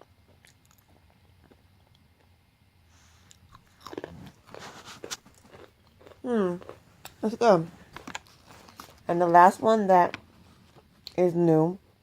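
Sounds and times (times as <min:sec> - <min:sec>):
person chewing crunchy chips: 0:00.0 - 0:02.3, 0:03.1 - 0:10.2.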